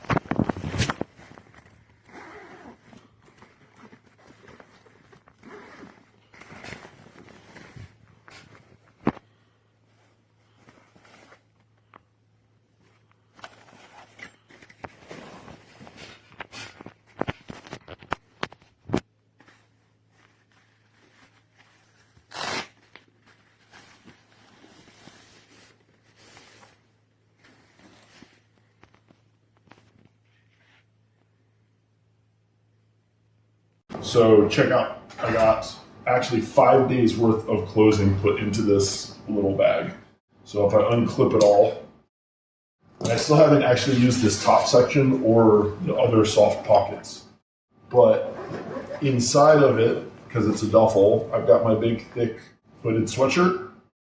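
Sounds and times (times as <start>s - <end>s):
fabric rustling: 0.0s - 11.9s, 12.7s - 31.2s
bag zipper being pulled: 2.0s - 3.1s, 3.7s - 7.8s.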